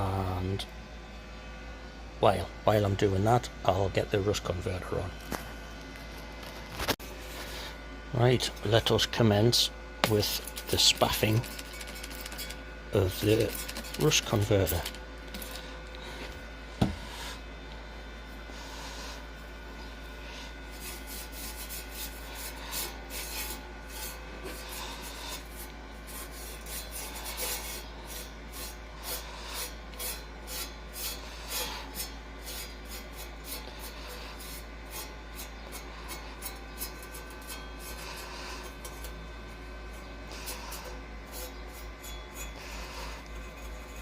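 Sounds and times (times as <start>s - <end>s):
brush scrubbing steel: 10.1s - 15.7s, 20.2s - 44.0s.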